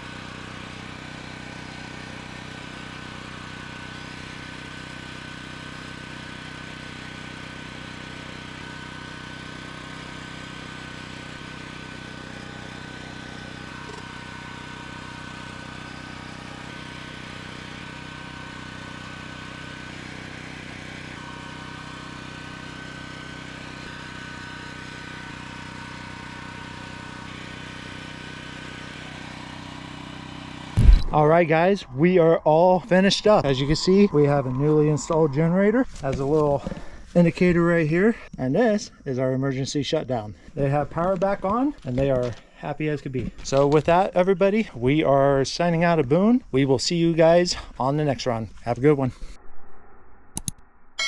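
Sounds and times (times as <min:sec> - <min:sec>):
generator engine drone: 0:00.0 - 0:37.9
thin high whine: 0:30.8 - 0:36.4.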